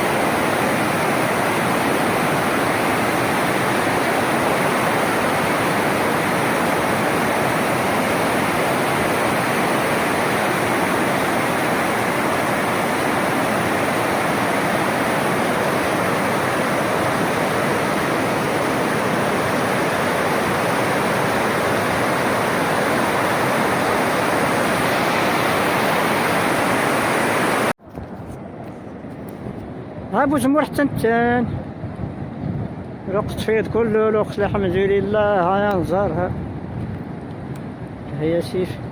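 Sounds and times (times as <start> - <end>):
floodwater rushing: 0.0 - 27.7.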